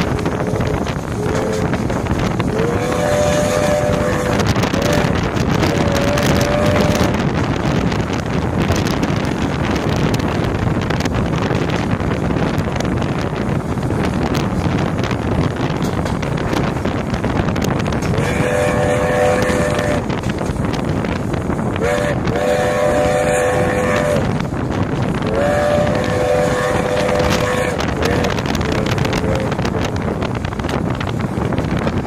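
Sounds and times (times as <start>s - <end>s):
steam whistle tone: 0.0s - 7.2s, 18.1s - 20.1s, 21.8s - 24.5s, 25.2s - 30.0s
train rumbling: 0.0s - 32.0s
wind on microphone: 0.0s - 32.0s.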